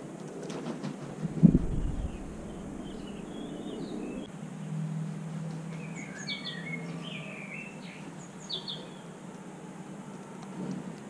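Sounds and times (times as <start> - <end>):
low steady hum: 1.4 - 4.3
small birds chirping: 1.4 - 4.3, 5.6 - 9.5.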